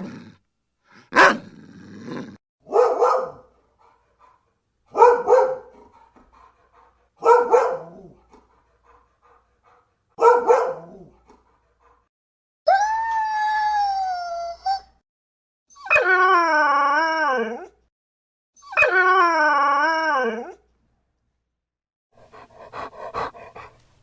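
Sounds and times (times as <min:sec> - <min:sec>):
dog barking: 0:01.0 - 0:01.5, 0:02.6 - 0:06.1, 0:07.2 - 0:08.2, 0:10.2 - 0:11.1.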